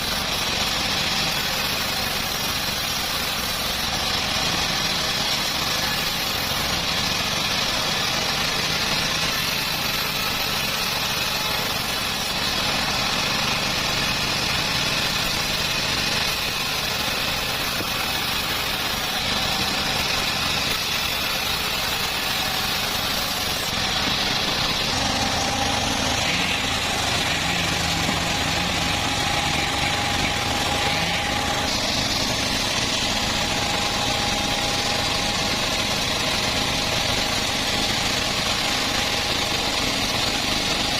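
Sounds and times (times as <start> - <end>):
bandsaw mill sawing wood: 0.0 - 40.9.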